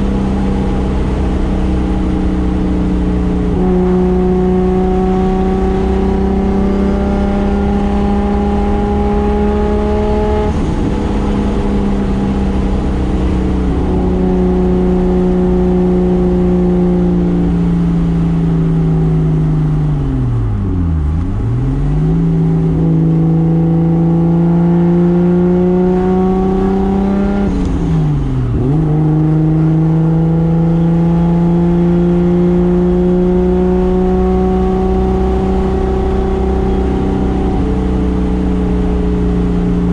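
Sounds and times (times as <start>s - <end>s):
engine at high revs: 0.0s - 39.9s.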